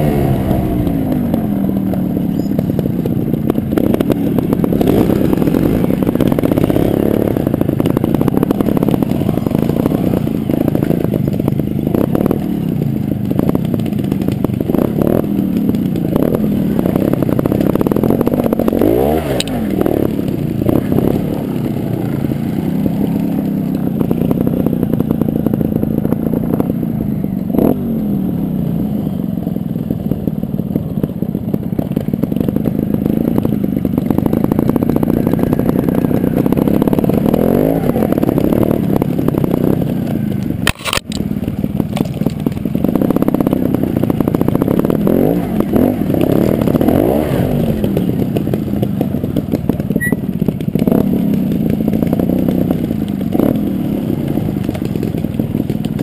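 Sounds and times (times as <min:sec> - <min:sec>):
two-stroke motorbike engine revving: 0:00.0 - 0:56.0.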